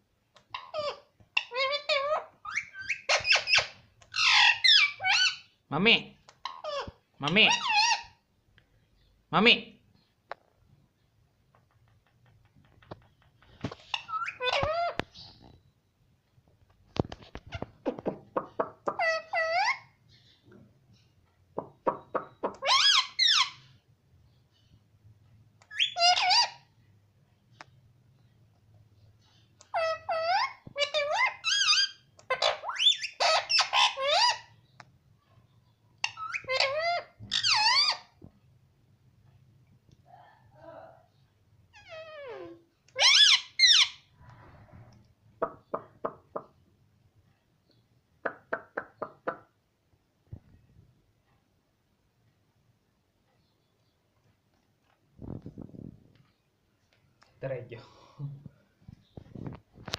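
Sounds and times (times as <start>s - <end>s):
parrot squawking: 0.5s - 5.6s, 6.4s - 8.2s, 13.8s - 15.0s, 18.6s - 20.0s, 21.9s - 23.7s, 25.7s - 26.7s, 29.6s - 34.5s, 36.0s - 38.2s, 41.7s - 44.1s.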